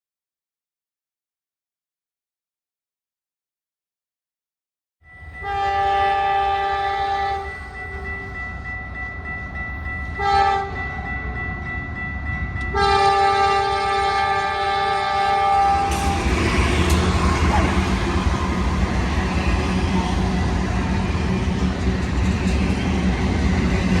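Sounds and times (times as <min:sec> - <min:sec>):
train rumbling: 0:05.1 - 0:24.0
locomotive air horn blasts: 0:05.4 - 0:07.5, 0:10.2 - 0:10.7, 0:12.7 - 0:16.2.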